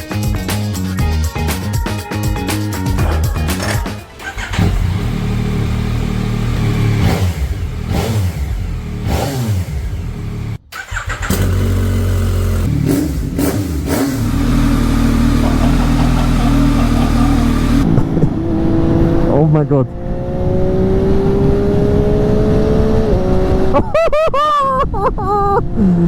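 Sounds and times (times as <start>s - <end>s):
car engine revving: 3.0s - 23.7s.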